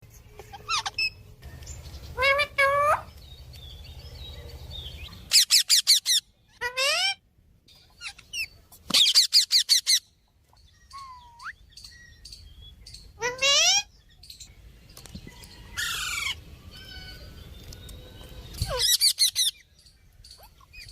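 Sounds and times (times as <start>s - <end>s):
parrots chirping and squawking: 0.3s - 1.3s, 2.0s - 3.2s, 4.3s - 10.2s, 10.8s - 14.4s, 15.6s - 17.4s, 18.5s - 20.9s.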